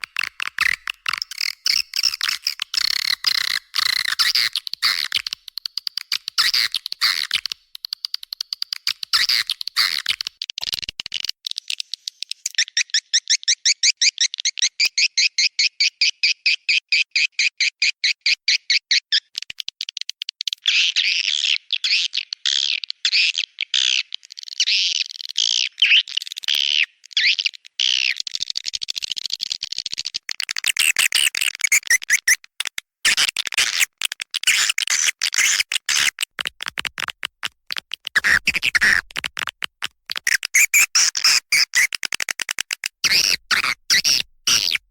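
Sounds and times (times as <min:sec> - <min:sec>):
quick evenly spaced chirps: 0:00.6 - 0:10.3, 0:30.5 - 0:32.4, 0:33.1 - 0:39.5, 0:40.1 - 0:44.8
recorded swiftlet twittering: 0:30.6 - 0:32.4, 0:40.2 - 0:44.8.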